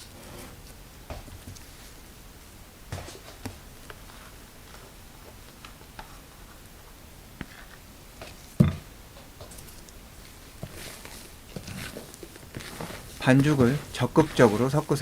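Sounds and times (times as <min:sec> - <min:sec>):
knock on bowl: 0:08.6 - 0:08.9
spatula scraping batter in bowl: 0:10.6 - 0:15.0.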